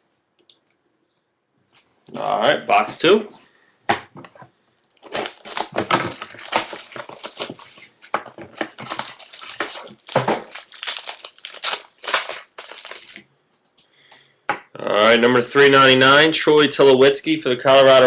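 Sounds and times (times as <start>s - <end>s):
plastic wrapping crinkling and tearing: 4.9s - 13.2s.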